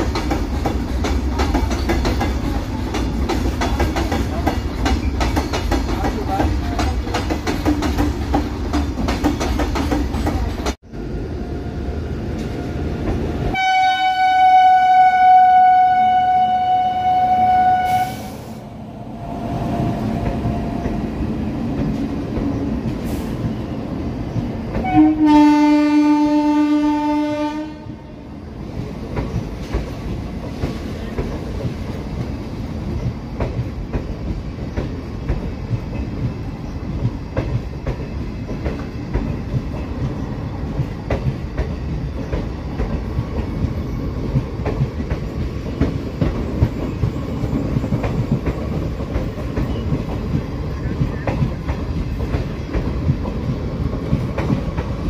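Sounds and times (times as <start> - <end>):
wheels clicking over rail joints: 0.0 - 10.8
train coaches rumbling past: 0.0 - 55.0
loud train horn: 13.5 - 18.6, 24.8 - 28.2.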